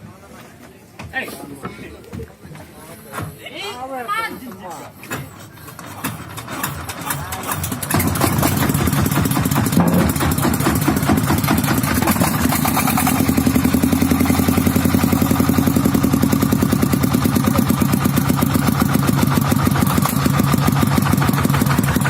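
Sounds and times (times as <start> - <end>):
diesel engine idling: 5.1 - 22.0.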